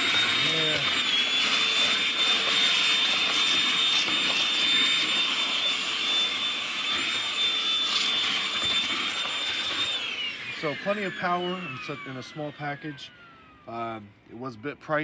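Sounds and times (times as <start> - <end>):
cordless vacuum motor whine: 0.0 - 14.1.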